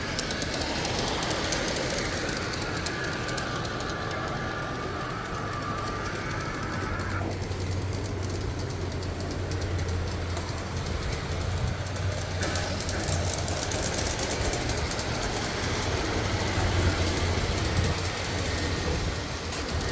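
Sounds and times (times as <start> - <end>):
model train motor hum: 0.0 - 19.9
wheels clicking on rails: 0.0 - 19.9.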